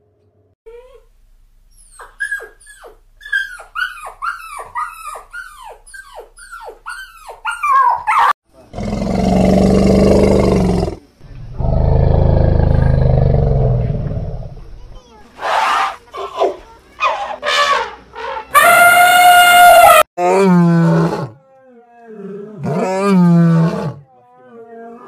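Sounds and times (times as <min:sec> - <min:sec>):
puppy yapping: 0:01.8 - 0:08.4.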